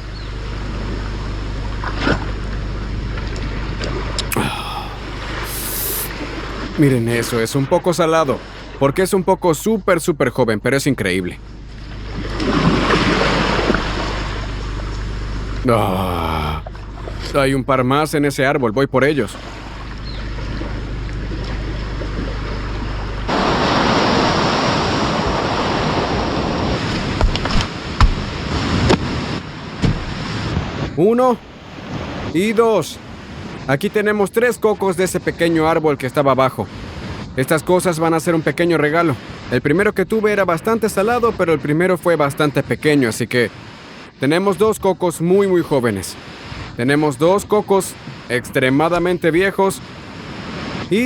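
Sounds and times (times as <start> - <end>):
wind: 0.0 - 51.0
short vocal sound: 4.2 - 7.3, 15.6 - 17.4
ocean surf: 4.4 - 9.3, 12.3 - 14.6, 23.3 - 34.5, 35.2 - 42.1, 42.7 - 51.0
surf rushing: 23.3 - 27.2.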